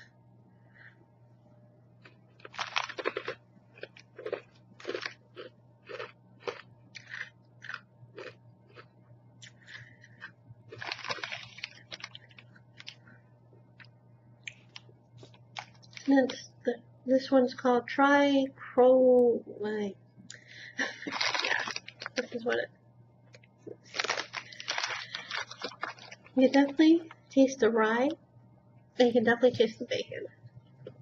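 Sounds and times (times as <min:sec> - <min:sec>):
person crunching croutons: 0:02.0 - 0:13.0, 0:14.6 - 0:16.4, 0:20.8 - 0:22.4, 0:23.7 - 0:26.9.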